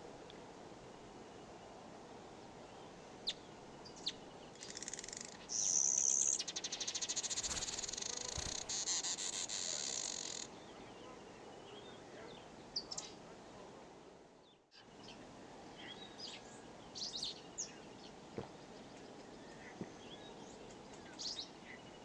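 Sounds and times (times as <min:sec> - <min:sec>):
insect pulsing trill: 0:07.3 - 0:08.8.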